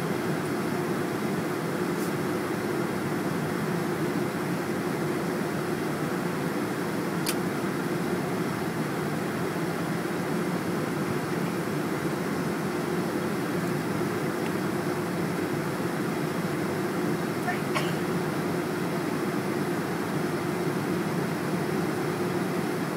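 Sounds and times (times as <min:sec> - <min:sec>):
airliner cabin noise: 0:00.0 - 0:22.9.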